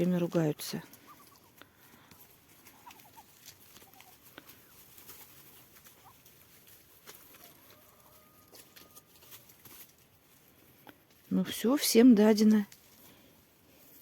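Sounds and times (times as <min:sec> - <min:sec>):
ducks soft calls: 0:00.8 - 0:08.3.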